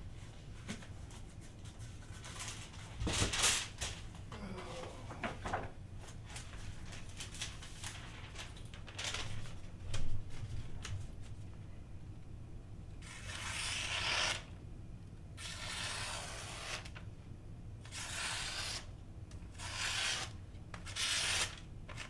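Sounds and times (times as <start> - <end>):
paper rustling: 0.5 - 11.5, 20.8 - 22.0.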